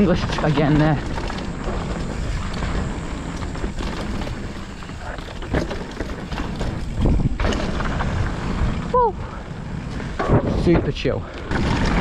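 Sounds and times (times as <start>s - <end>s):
bike knocks over bumps: 0.0s - 8.6s
tyres rolling over dirt: 0.0s - 8.9s, 9.9s - 12.0s
wind on microphone: 1.7s - 10.9s.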